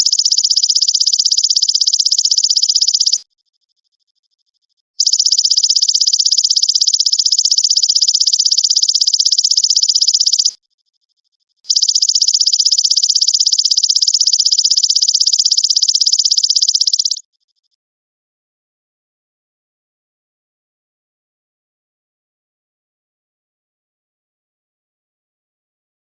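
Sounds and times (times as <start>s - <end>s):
grasshopper buzzing trill: 5.0s - 10.5s, 11.7s - 17.2s.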